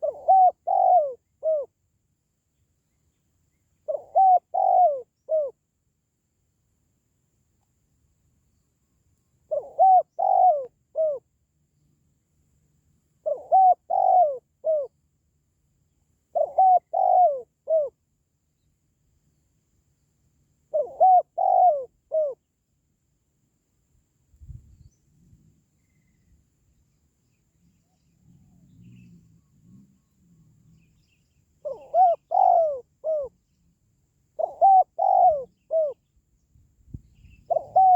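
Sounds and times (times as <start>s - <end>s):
dove cooing: 0.0s - 1.7s, 3.8s - 5.6s, 9.5s - 11.2s, 13.2s - 14.9s, 16.3s - 18.0s, 20.7s - 22.4s, 31.6s - 33.4s, 34.3s - 36.0s, 37.5s - 37.9s.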